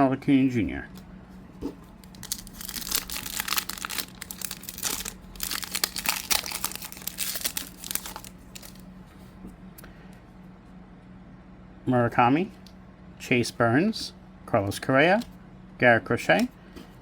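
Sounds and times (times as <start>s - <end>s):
wrapper tearing and crinkling: 2.0s - 8.8s.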